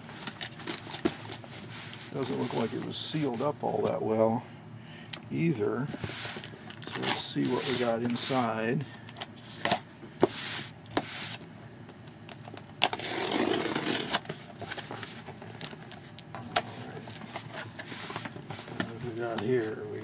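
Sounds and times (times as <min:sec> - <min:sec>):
cardboard tearing: 0:12.8 - 0:14.8.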